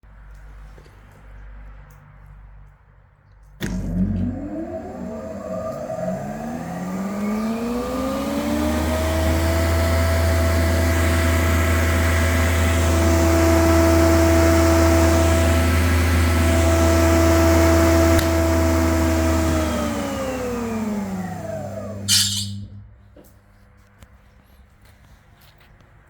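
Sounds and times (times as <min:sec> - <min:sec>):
planer motor whining: 0:03.6 - 0:22.9.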